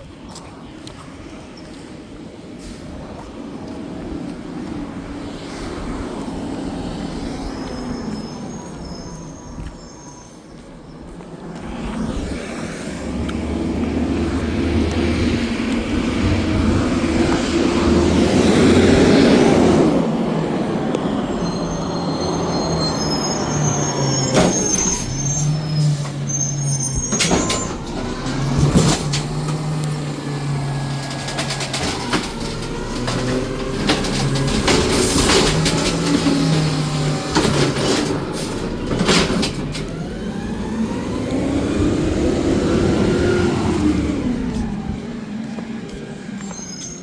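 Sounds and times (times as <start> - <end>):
high squeal: 7.1 - 11.0, 21.2 - 28.6, 46.4 - 47.0
garbage truck engine: 11.6 - 47.0.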